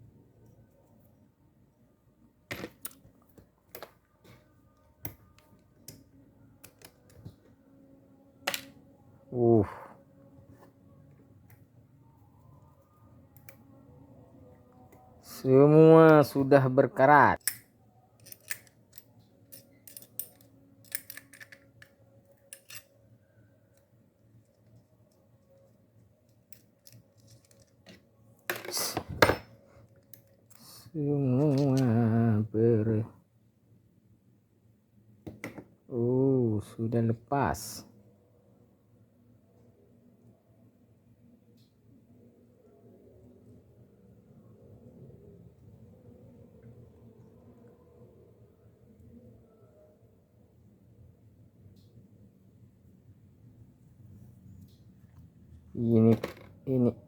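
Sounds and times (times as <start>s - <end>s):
metallic clinking and rattling: 17.4s - 22.9s
faint clicks of metal parts: 17.4s - 23.1s, 23.7s - 32.0s.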